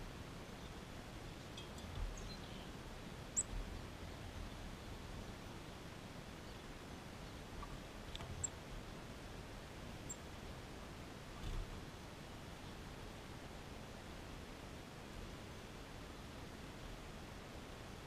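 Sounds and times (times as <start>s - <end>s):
faint background hiss: 0.0s - 18.0s.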